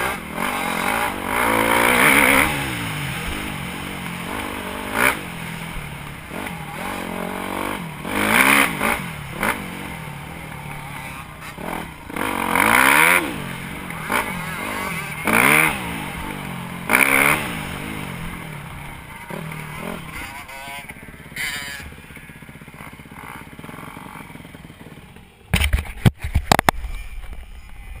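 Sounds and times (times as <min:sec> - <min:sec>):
dirt bike engine revving: 0:00.0 - 0:25.8.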